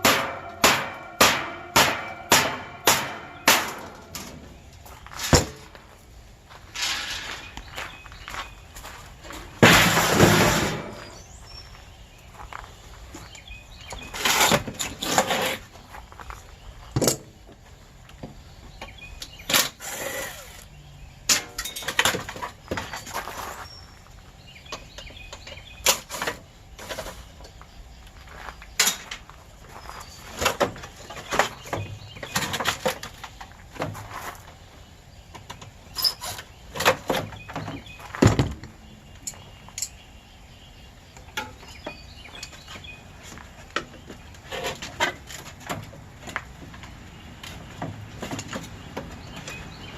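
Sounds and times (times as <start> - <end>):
metal clanks and scrapes: 0.0 - 5.7, 6.7 - 7.7, 9.2 - 11.3, 13.9 - 15.8, 21.3 - 23.6, 24.8 - 27.5, 35.9 - 38.0, 43.8 - 46.0.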